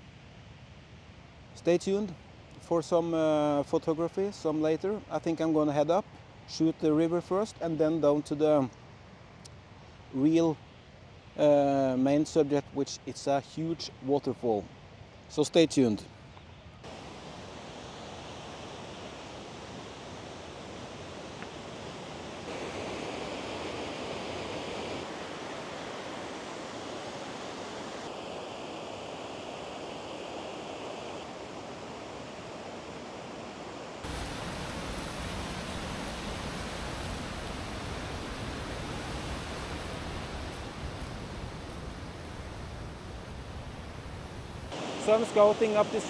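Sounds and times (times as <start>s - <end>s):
rushing river water: 16.8s - 46.0s.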